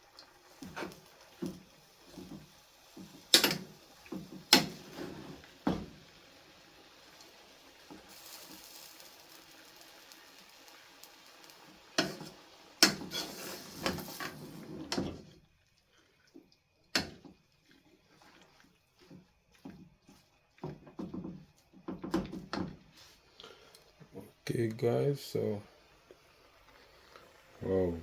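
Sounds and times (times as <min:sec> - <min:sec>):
faint steady hiss: 0:00.0 - 0:28.0
pots and utensils clanking: 0:00.6 - 0:06.1, 0:11.9 - 0:15.4, 0:16.9 - 0:17.4, 0:20.6 - 0:22.8.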